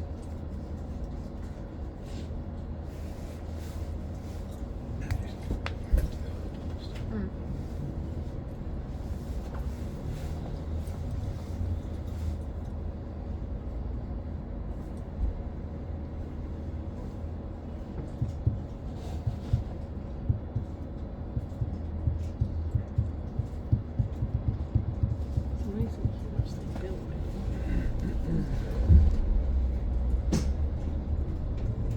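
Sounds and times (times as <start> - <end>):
bus interior low rumble: 0.0 - 31.9
short knocks and thumps: 18.2 - 26.8.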